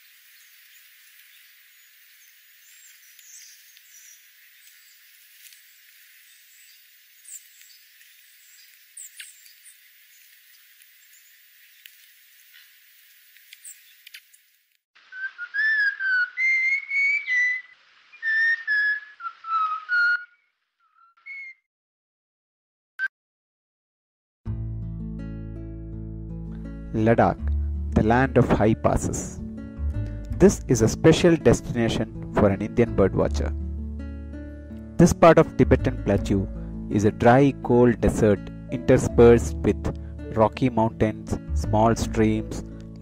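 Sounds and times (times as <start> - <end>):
distant bird chirps: 0.0 - 21.7
bird singing whistled notes: 0.4 - 10.2, 15.1 - 21.6.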